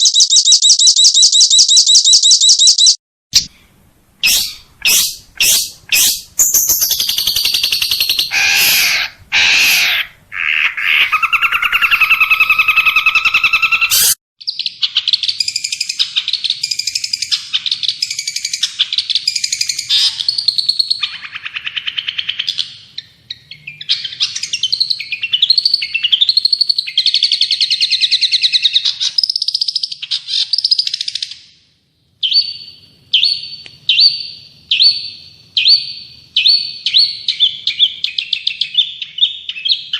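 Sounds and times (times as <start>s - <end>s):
short repeated bird notes: 4.2s - 9.8s
songbird warbling: 4.2s - 14.1s.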